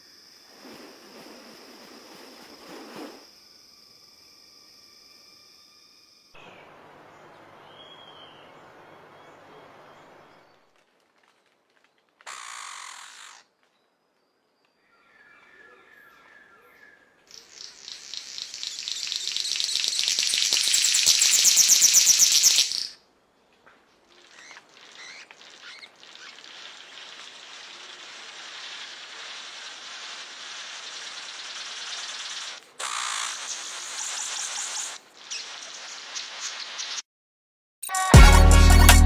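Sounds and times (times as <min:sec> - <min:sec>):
thin whistled tones: 0:00.0 - 0:03.3
soft hiss: 0:00.0 - 0:10.7, 0:17.3 - 0:37.0.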